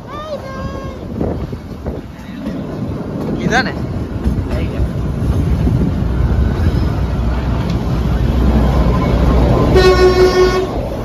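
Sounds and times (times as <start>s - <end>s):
train rumbling: 0.0s - 11.0s
train horn blast: 9.0s - 11.0s.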